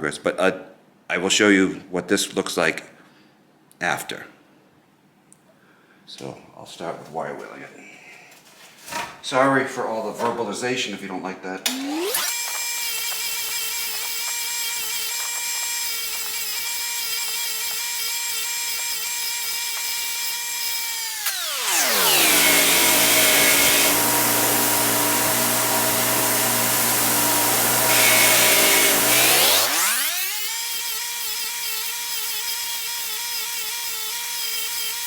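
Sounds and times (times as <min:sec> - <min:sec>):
wire wheel tool whining: 0:11.7 - 0:35.0.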